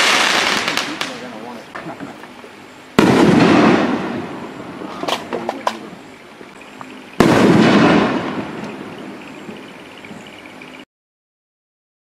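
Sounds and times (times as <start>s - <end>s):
firework shells bursting: 0.0s - 1.5s, 3.0s - 6.0s, 7.2s - 9.6s
sharp firework cracks: 0.0s - 1.5s, 3.0s - 5.9s, 7.2s - 9.0s.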